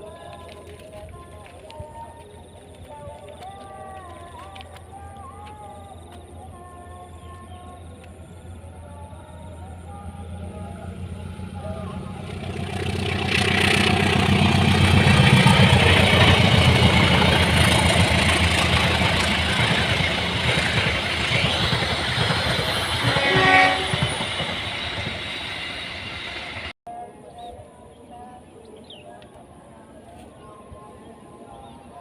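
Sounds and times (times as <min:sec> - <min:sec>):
wheel and rail rumbling: 0:00.0 - 0:26.7
train engine drone: 0:00.0 - 0:26.8
train horn: 0:08.6 - 0:26.7.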